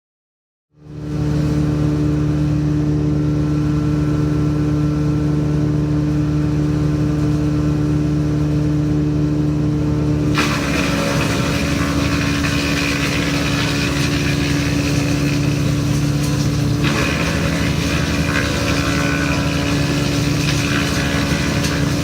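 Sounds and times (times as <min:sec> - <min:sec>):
woodchipper engine humming: 0:00.8 - 0:22.0
harsh noisy grinding: 0:10.2 - 0:22.0.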